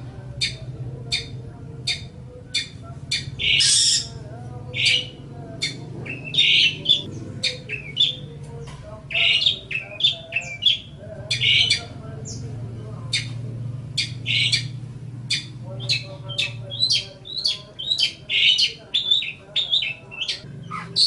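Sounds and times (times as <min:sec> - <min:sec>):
steady low hum: 0:00.0 - 0:21.0
harsh scratchy bird chattering: 0:00.3 - 0:21.0
bird singing sharp chips: 0:04.8 - 0:12.4, 0:14.0 - 0:21.0.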